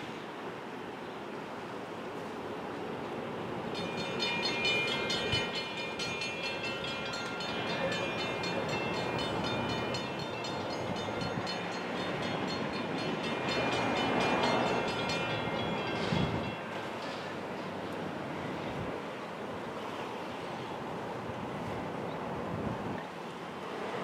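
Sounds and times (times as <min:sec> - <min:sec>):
train rumbling on rails: 0:00.0 - 0:24.0
ringing metallic rail tones: 0:03.7 - 0:17.8.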